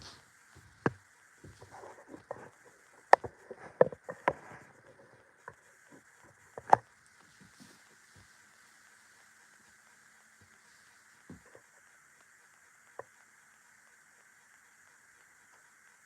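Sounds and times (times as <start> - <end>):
irregular knocks and clicks: 0.6 - 7.6.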